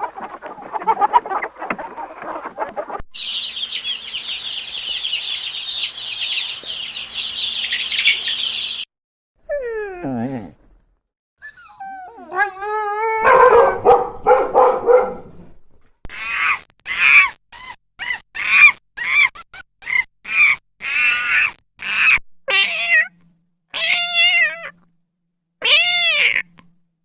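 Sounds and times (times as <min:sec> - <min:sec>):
animal cries: 0:11.4 - 0:15.2, 0:16.1 - 0:24.8, 0:25.6 - 0:26.6
cat meowing: 0:22.1 - 0:23.2, 0:23.8 - 0:24.8, 0:25.6 - 0:26.6.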